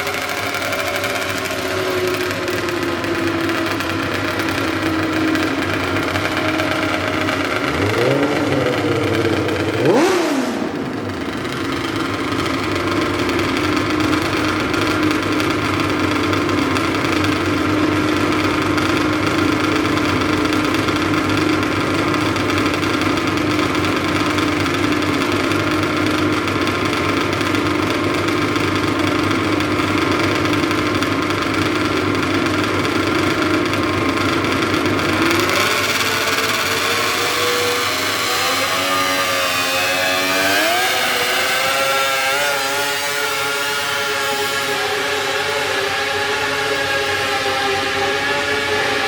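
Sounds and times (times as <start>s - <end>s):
garden tractor engine running: 0.0s - 44.9s.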